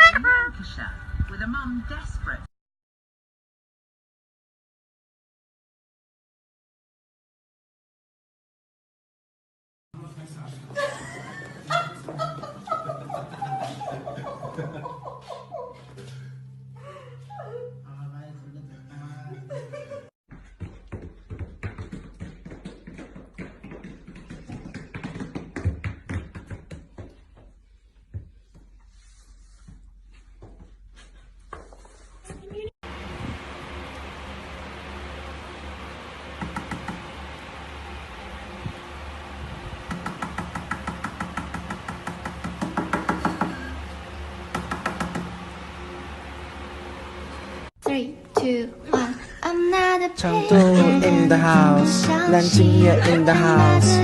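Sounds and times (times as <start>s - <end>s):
rapid irregular taps and knocks: 20.3s - 28.7s, 39.9s - 43.6s.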